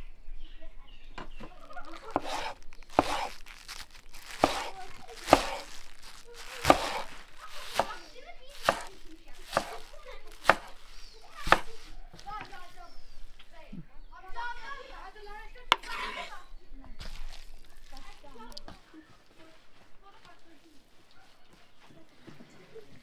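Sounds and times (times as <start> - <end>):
onion stalks crunching: 1.4 - 13.6, 17.0 - 20.7
knife striking cutting board: 2.1 - 3.3, 4.4 - 5.7, 6.6 - 8.0, 8.6 - 12.5.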